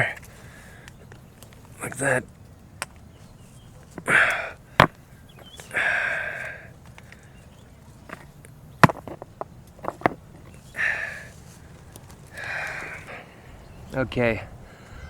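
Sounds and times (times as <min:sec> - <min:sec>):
man sniffing and breathing out: 0:10.7 - 0:11.6, 0:12.3 - 0:13.3.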